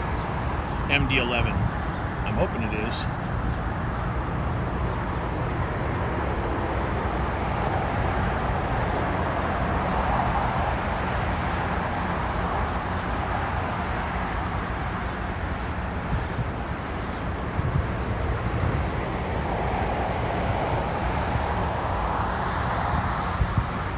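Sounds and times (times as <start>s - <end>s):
jet airliner roar: 0.8s - 3.2s.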